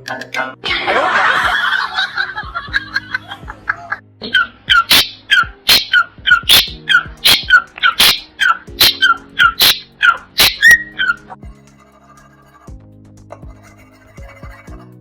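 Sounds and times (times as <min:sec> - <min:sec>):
background music: 0:00.0 - 0:15.0
small dog yapping: 0:04.2 - 0:11.2.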